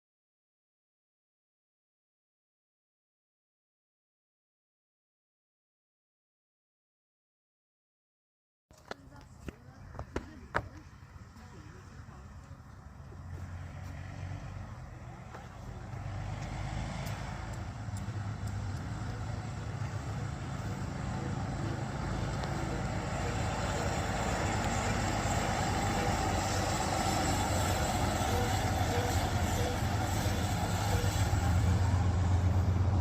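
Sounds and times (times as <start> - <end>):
bus engine low hum: 8.7 - 33.0.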